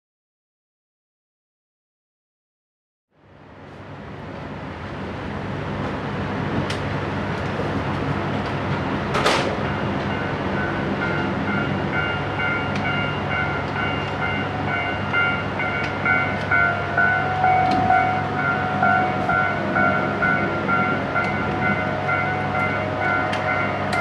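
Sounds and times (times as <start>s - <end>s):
train rumble: 3.2s - 24.0s
high whine: 9.6s - 24.0s
low tone: 9.6s - 24.0s.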